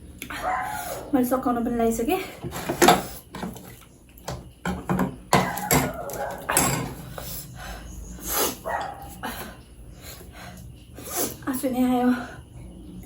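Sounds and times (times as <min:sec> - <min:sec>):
dog barking: 0:00.4 - 0:01.2, 0:05.4 - 0:06.6, 0:08.6 - 0:09.2.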